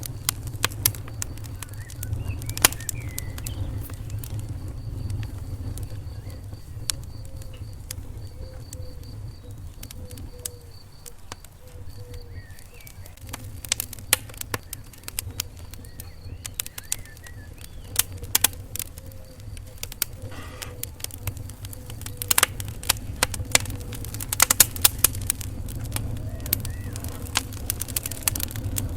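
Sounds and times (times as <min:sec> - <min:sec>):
low rumble of flame: 0:00.0 - 0:28.9
wood fire crackling: 0:00.0 - 0:28.9.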